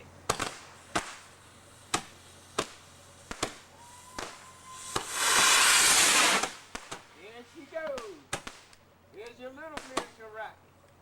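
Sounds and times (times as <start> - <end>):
sharp pops: 0.3 - 7.1, 7.8 - 10.2
firework rocket rushing hiss: 0.4 - 7.7.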